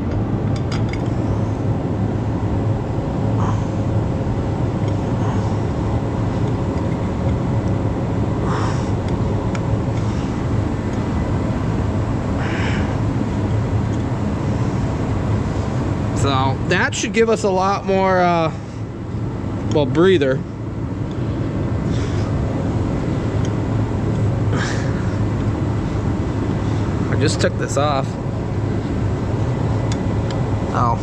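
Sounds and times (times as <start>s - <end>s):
heater droning: 0.0s - 31.0s
parts clinking and rustling: 0.5s - 1.2s.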